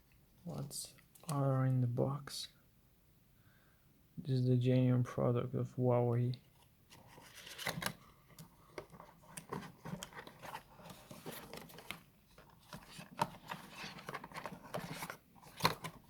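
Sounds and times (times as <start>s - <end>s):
cardboard and paper rustling: 6.5s - 16.0s.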